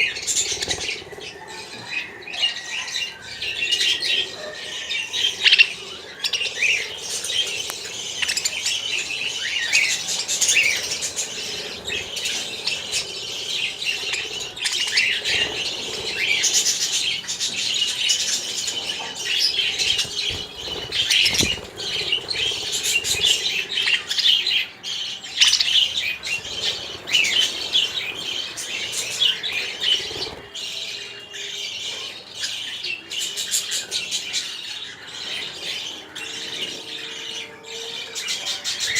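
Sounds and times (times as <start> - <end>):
wings fluttering: 0.0 - 4.4, 5.1 - 24.7, 25.3 - 31.0
small birds chirping and squawking: 0.0 - 38.9.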